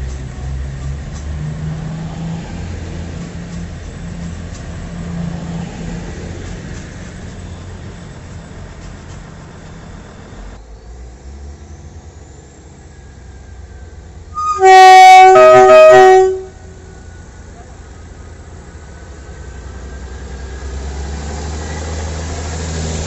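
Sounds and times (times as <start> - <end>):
train rumble: 0.0 - 23.0
two-tone train horn: 14.3 - 17.0.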